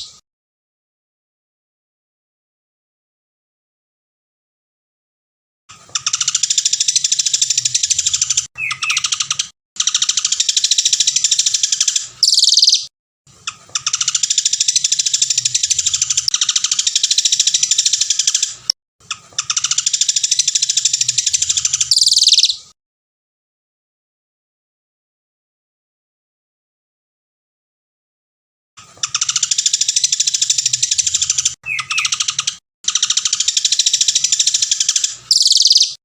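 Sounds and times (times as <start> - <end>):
songbird singing rapid trills: 6.0 - 12.9, 19.4 - 22.6, 29.1 - 36.0.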